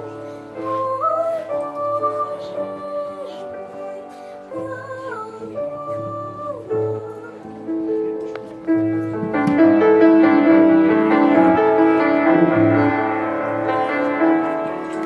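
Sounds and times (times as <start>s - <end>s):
piano playing chords and melody: 0.0s - 15.0s.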